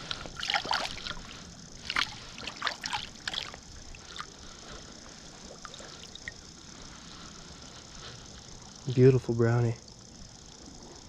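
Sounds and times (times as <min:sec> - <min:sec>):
fish splashing in water: 0:00.0 - 0:04.4, 0:05.4 - 0:06.4.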